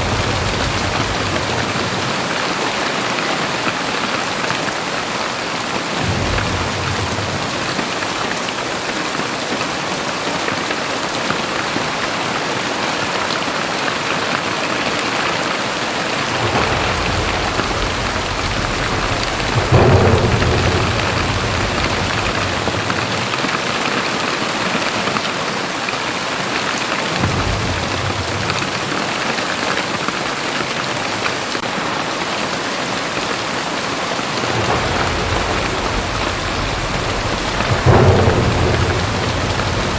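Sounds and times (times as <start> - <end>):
thunder rumbling: 0.0 - 9.2, 14.7 - 25.1, 26.9 - 39.9
thunder clap: 0.0 - 12.2, 14.0 - 25.4, 26.4 - 39.9
heavy rain: 0.0 - 39.9.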